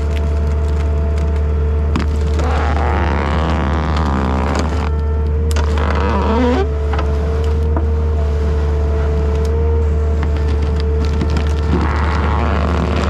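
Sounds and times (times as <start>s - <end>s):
wood cracking and snapping: 0.0s - 7.8s, 10.2s - 13.0s
diesel engine running under load: 0.0s - 13.0s
steady whine: 0.0s - 13.0s.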